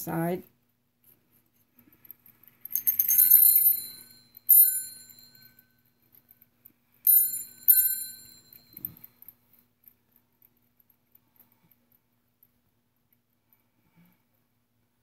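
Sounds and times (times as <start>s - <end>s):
small metal bell ringing: 2.7s - 6.2s, 7.0s - 9.4s.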